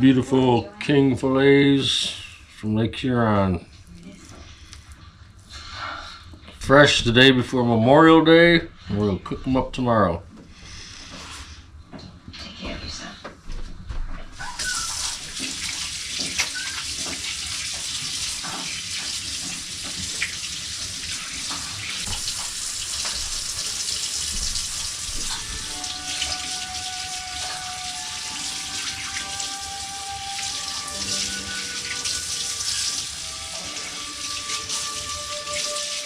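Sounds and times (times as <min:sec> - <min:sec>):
running water rushing: 0:14.4 - 0:36.0
steady music tones: 0:25.4 - 0:36.0.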